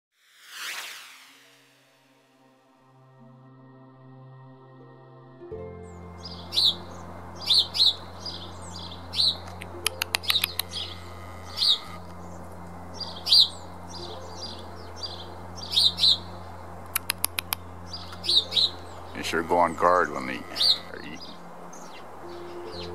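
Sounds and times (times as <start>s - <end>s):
steady low hum: 2.7s - 22.9s
songbirds chirping: 5.1s - 22.9s
bird clicking notes: 9.3s - 10.9s, 16.8s - 18.3s.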